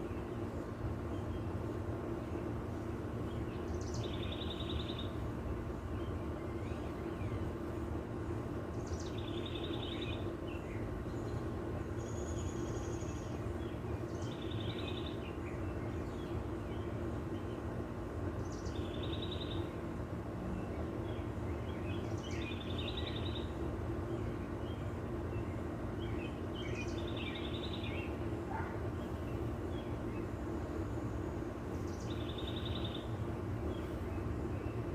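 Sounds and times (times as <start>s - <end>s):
low background hum: 0.0s - 34.9s
bird chirps: 3.2s - 5.2s, 8.7s - 17.6s, 18.4s - 19.7s, 20.6s - 30.3s, 31.8s - 34.9s.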